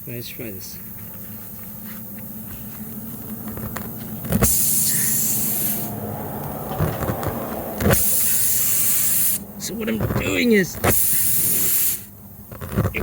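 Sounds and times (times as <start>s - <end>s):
air hissing from tyre: 1.8s - 12.9s
reamer tool scraping: 6.7s - 13.0s.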